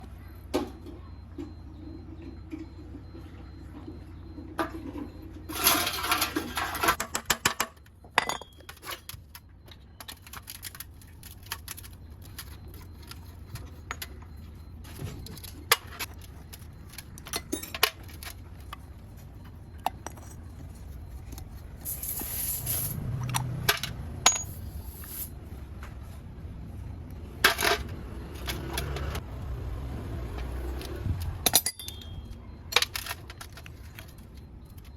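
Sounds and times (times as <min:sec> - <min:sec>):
small metal parts clinking: 0:05.5 - 0:18.9, 0:19.8 - 0:25.4, 0:27.4 - 0:29.2, 0:30.8 - 0:34.9.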